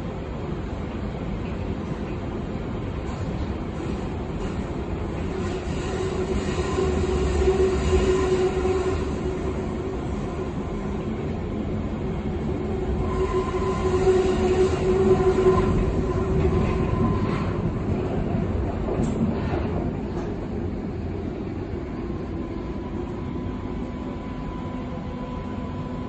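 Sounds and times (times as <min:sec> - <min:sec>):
subway train rumbling on track: 0:00.0 - 0:26.0
train whining tone: 0:05.2 - 0:18.3.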